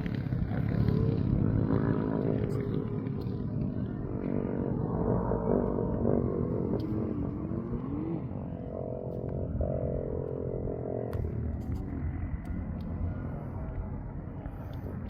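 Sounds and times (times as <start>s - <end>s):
dirt bike engine revving: 0.0s - 11.4s.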